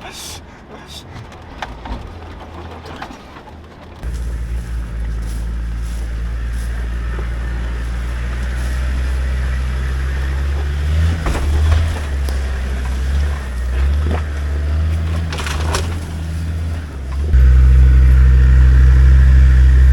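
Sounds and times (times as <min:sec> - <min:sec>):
vehicle engine running at low revs: 0:04.0 - 0:19.9.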